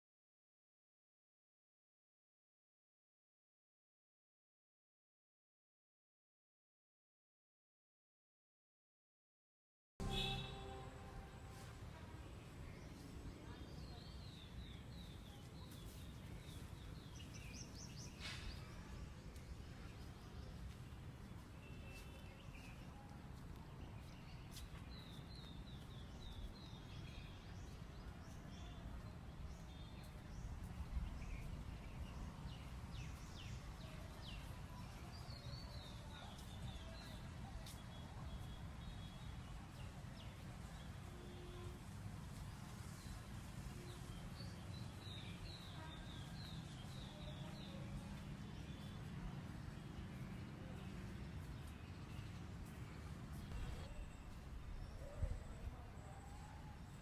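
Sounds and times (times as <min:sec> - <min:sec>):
small birds chirping: 0:43.8 - 0:57.0.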